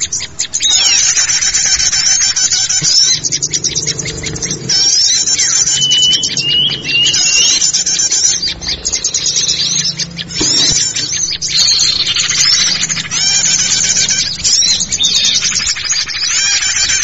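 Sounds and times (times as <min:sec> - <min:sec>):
songbirds chirping and trilling: 0:00.0 - 0:17.0
short rising whistles: 0:04.7 - 0:08.0.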